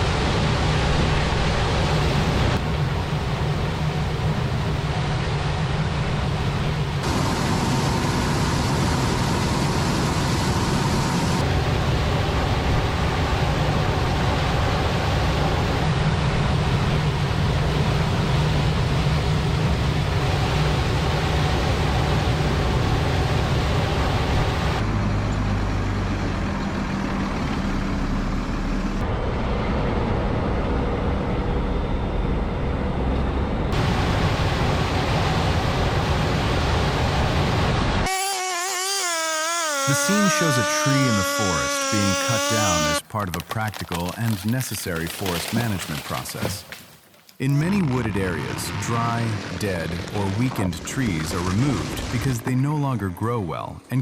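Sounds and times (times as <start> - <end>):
heavy machinery engines running: 0.0 - 38.0.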